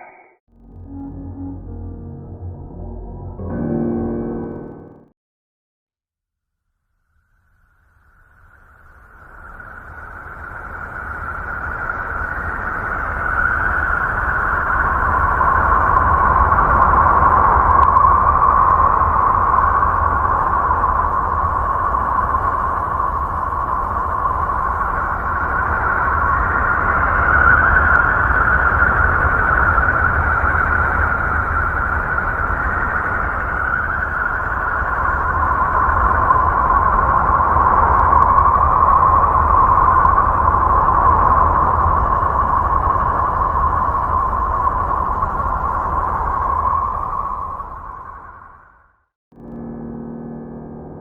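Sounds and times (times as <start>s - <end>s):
noisy rumbling drone: 0.0s - 5.1s, 49.4s - 51.0s.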